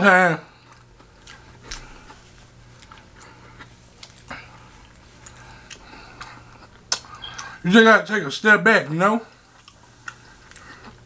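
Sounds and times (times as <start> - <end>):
low steady hum: 0.0 - 11.0
wet mouth clicks of chewing: 2.8 - 7.5.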